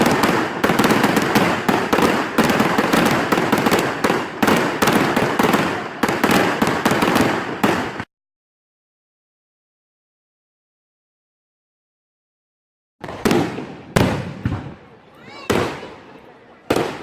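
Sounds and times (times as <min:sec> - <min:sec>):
fireworks bangs and crackles: 0:00.0 - 0:08.1, 0:13.0 - 0:17.0.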